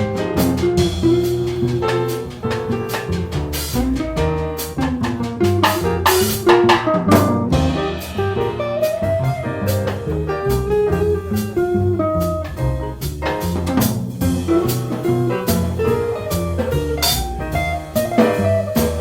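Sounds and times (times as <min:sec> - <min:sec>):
bass line: 0:00.0 - 0:19.0
drum kit with cymbals: 0:00.0 - 0:19.0.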